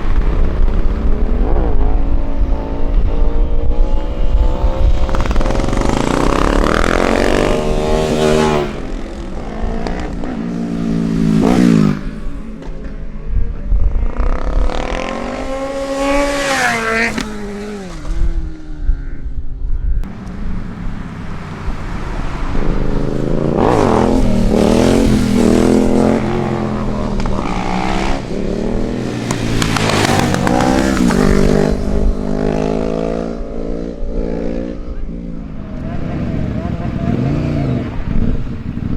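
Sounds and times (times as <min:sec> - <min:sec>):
vehicle engine revving: 0:20.0 - 0:34.1, 0:34.7 - 0:38.9.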